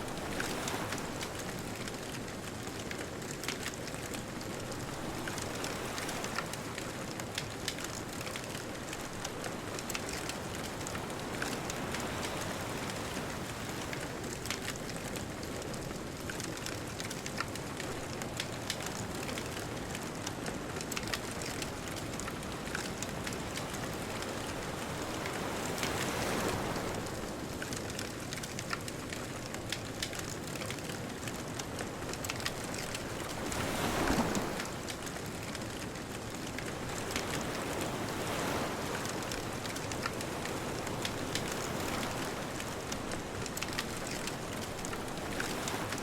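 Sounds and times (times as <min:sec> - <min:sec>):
bonfire crackling: 0:00.1 - 0:46.0
distant ocean surf: 0:31.8 - 0:35.8, 0:36.4 - 0:46.0.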